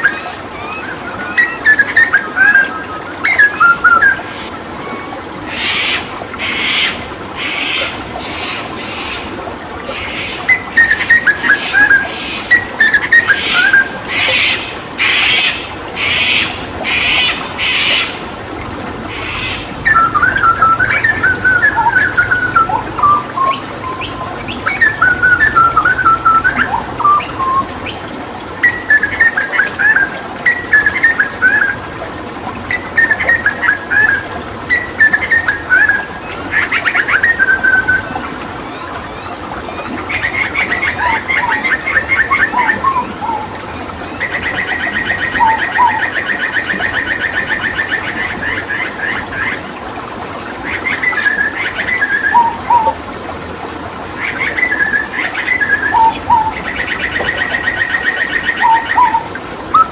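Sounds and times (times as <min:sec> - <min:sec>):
bird singing and chirping: 0:00.0 - 0:04.2, 0:19.1 - 0:28.0, 0:44.2 - 0:48.3, 0:54.3 - 0:59.9
running water hiss: 0:00.0 - 0:59.9.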